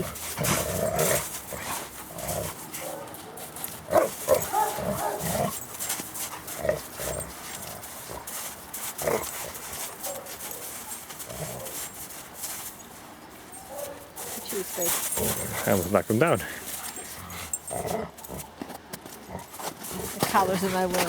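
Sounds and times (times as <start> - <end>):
dogs giving short vocal sounds: 0.0 - 12.7, 13.4 - 15.9
dogs scuffling: 0.0 - 21.0.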